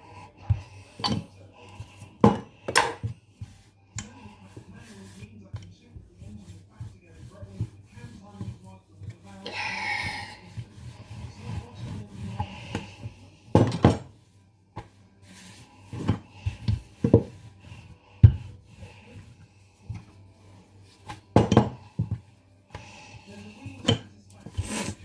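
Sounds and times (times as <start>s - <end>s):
pie dishes knocking on worktop: 13.5s - 14.1s, 21.3s - 22.2s.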